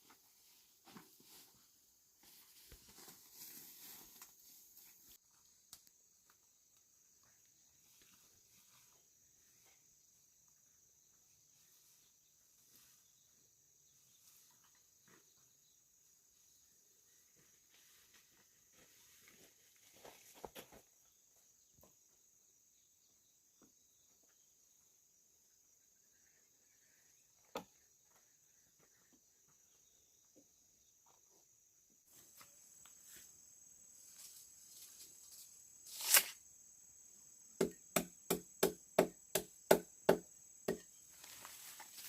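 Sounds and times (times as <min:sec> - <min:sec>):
insects trilling: 0:32.1 - 0:42.0
short scrape: 0:35.8 - 0:36.4
sharp strikes on wood: 0:37.6 - 0:40.8.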